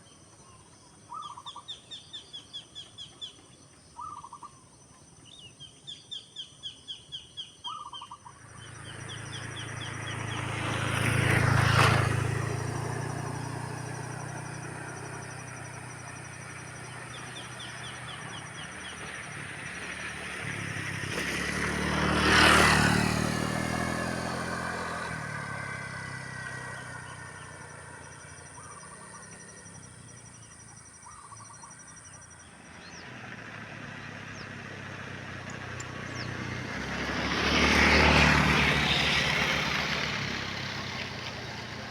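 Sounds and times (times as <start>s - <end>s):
bird chirping: 0.0s - 11.3s, 14.3s - 20.2s, 26.4s - 33.2s, 35.4s - 36.6s
vehicles passing by: 0.1s - 41.9s.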